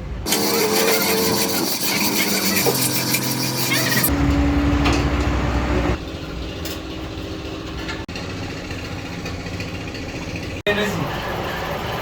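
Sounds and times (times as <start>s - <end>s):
engine running: 4.0s - 12.0s.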